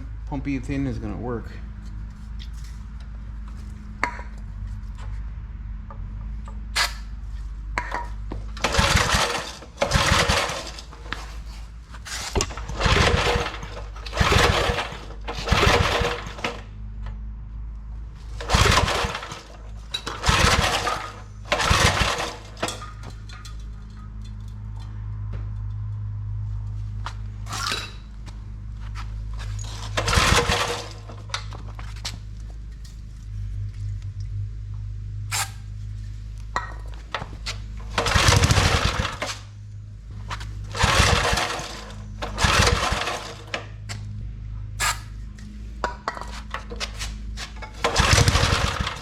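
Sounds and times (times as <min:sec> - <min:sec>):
steady low hum: 0:00.0 - 0:49.0
pull-cord starter cranking engine: 0:07.8 - 0:16.8, 0:18.3 - 0:24.1, 0:29.4 - 0:32.2, 0:36.6 - 0:39.6, 0:40.3 - 0:43.9, 0:46.1 - 0:49.0.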